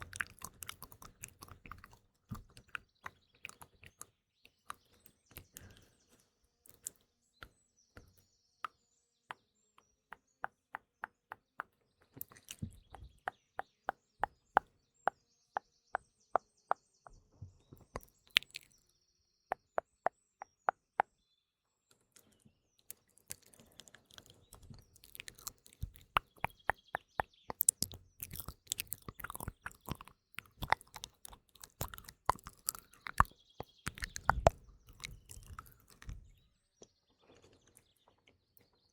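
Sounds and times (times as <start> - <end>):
tongue clicks: 0.0 - 5.9, 6.7 - 7.0, 11.3 - 13.3, 17.9 - 18.8, 22.9 - 36.4
wet crackly mouth sounds: 0.0 - 6.0, 6.7 - 7.0, 10.4 - 13.4, 17.8 - 18.8, 22.2 - 36.4
faint birdsong: 0.0 - 38.9.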